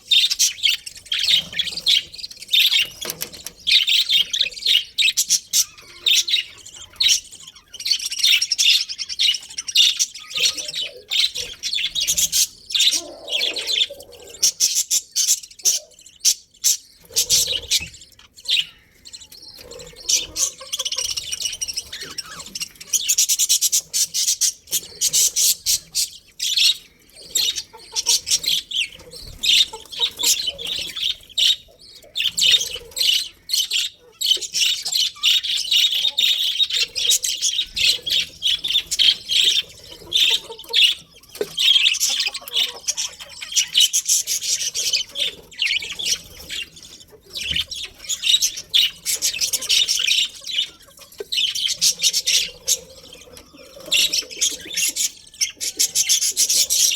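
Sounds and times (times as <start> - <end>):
budgerigars chirping and chattering: 0.0 - 56.9.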